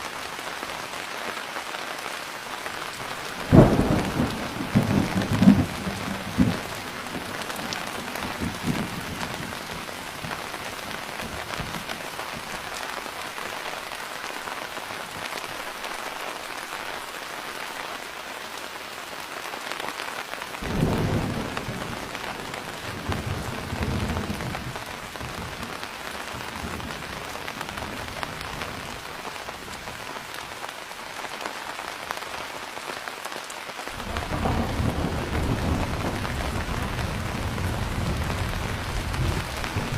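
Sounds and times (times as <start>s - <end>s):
steady rain falling: 0.0s - 39.9s
thunder rumbling: 3.3s - 11.8s, 34.0s - 39.9s.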